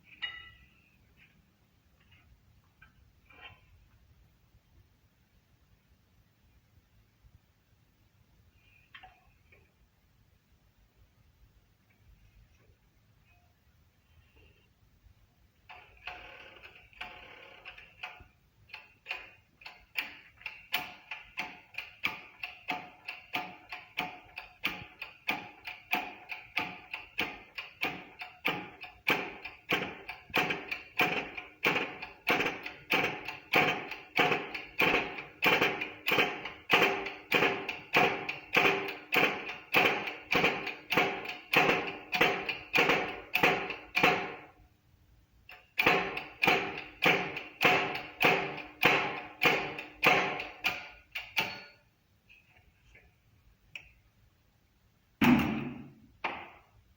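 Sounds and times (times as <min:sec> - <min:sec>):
hammer striking metal: 0:00.2 - 0:00.7.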